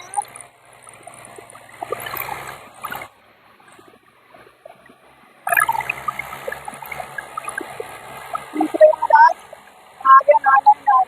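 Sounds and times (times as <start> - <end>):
tractor engines running under load: 0.0 - 11.0.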